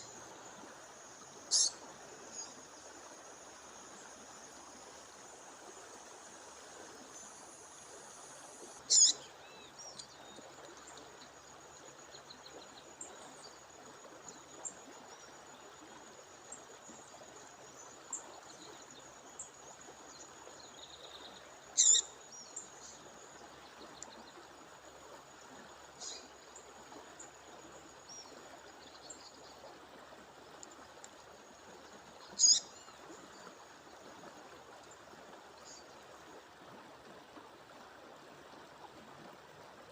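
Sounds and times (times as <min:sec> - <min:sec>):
songbird sharp calls: 0:01.5 - 0:01.8, 0:08.9 - 0:09.6, 0:21.8 - 0:22.1, 0:32.3 - 0:32.7
faint bird chirps: 0:01.5 - 0:02.6, 0:08.9 - 0:10.4, 0:20.7 - 0:23.0, 0:32.3 - 0:33.0.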